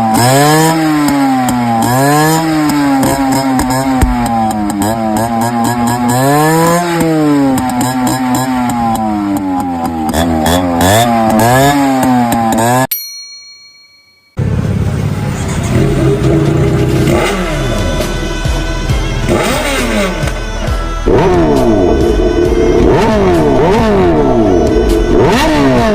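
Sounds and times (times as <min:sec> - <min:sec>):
motorcycle engine revving: 0:00.0 - 0:12.9, 0:14.4 - 0:25.9
background music: 0:15.0 - 0:25.9.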